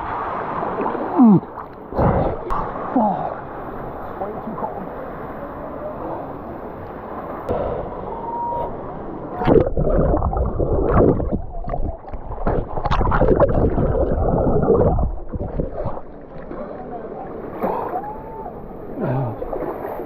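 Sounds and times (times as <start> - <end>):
low rumble: 9.4 - 16.4
water gurgling and splashing: 9.4 - 18.2, 18.9 - 20.0.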